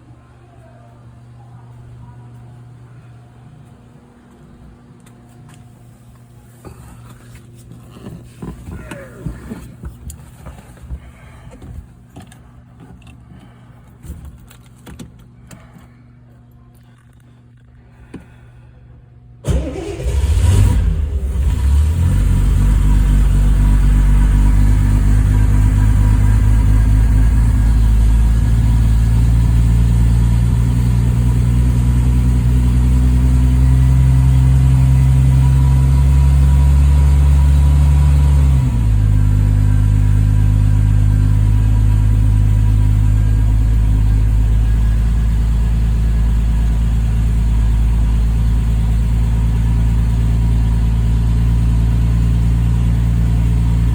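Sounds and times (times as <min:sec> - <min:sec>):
starter motor cranking: 0:19.4 - 0:21.5
car engine idling: 0:19.4 - 0:53.9.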